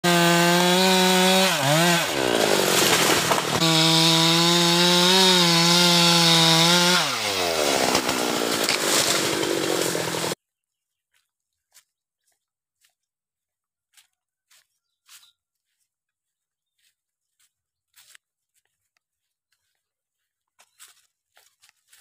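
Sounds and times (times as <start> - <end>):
chainsaw running at high revs: 0.0 - 10.4.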